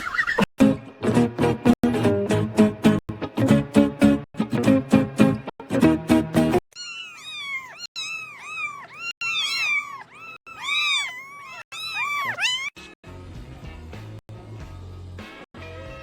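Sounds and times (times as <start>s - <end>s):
music: 0.6s - 6.6s, 12.8s - 16.0s
cat meowing: 6.8s - 12.9s.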